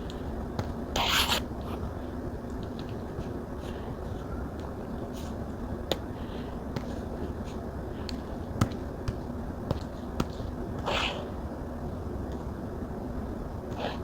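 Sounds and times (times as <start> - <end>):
scratchy pen stroke: 1.0 - 1.8.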